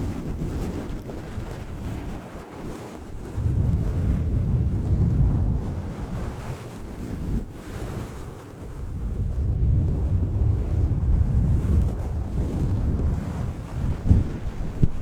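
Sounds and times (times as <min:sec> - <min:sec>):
deep rumbling wind-like hiss: 0:03.0 - 0:15.0.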